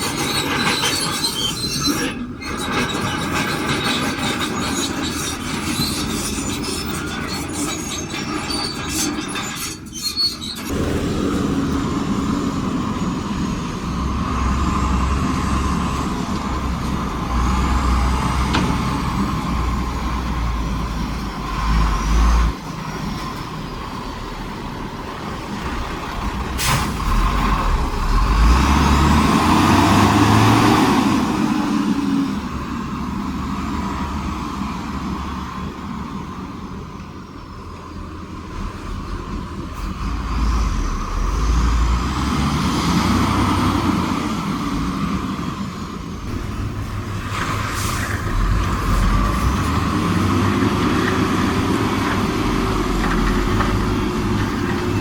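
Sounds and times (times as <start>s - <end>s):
machinery rattling and scraping: 0.0s - 34.3s, 46.1s - 55.0s
diesel machinery engine rumbling: 0.0s - 55.0s.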